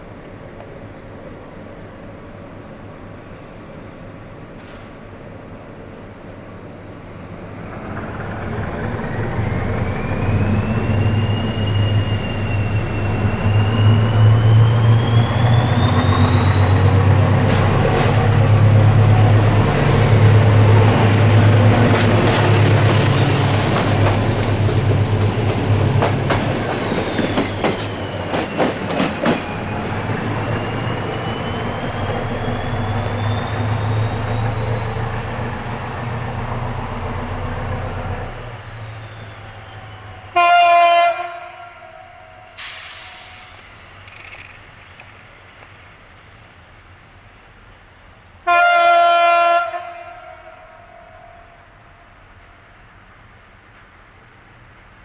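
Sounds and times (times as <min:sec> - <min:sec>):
passenger train passing: 0:00.0 - 0:55.0
rising whine: 0:07.5 - 0:28.2, 0:29.3 - 0:40.3
wheels clicking over rail joints: 0:20.8 - 0:33.8, 0:44.0 - 0:46.0.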